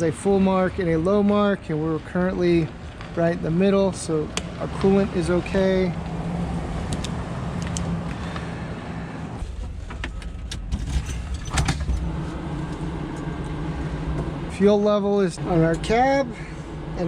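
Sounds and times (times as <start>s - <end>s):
engine idling: 7.8s - 17.0s.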